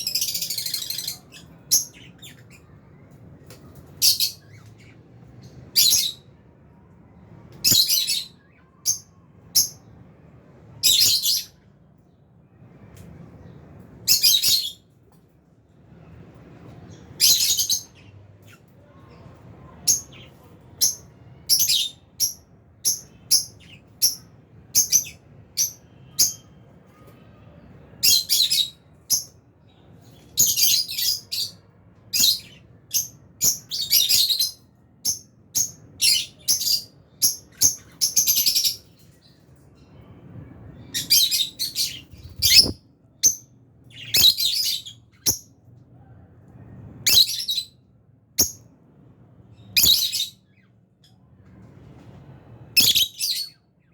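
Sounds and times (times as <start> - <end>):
lovebirds chirping: 0.0 - 6.4, 16.7 - 45.6, 49.5 - 51.2, 52.7 - 53.9.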